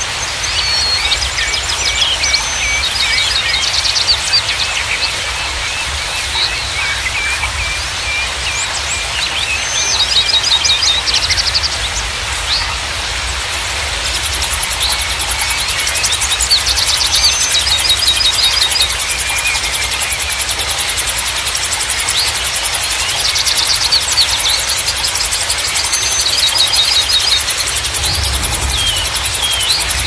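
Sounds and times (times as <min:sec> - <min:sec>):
running water: 0:00.0 - 0:30.0
songbirds chirping and trilling: 0:00.0 - 0:30.0.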